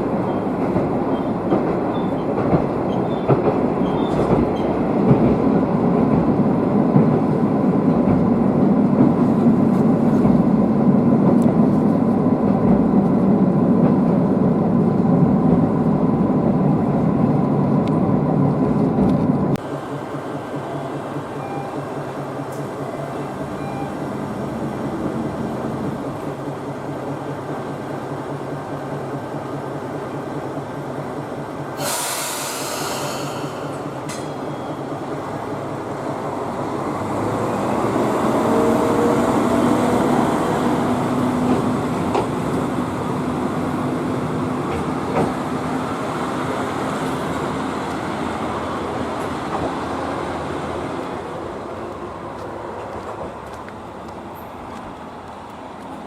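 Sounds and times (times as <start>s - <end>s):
railcar engine and rail noise: 0.0s - 56.0s.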